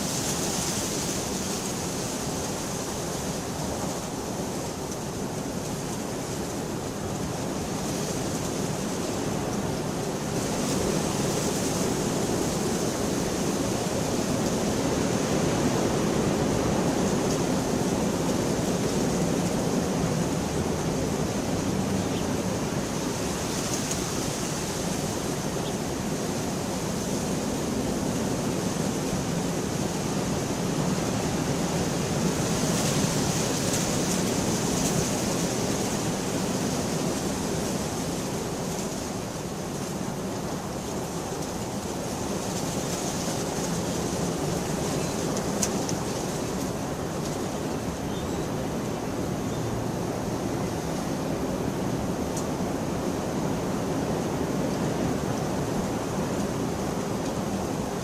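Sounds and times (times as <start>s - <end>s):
heavy rain hissing: 0.0s - 58.0s.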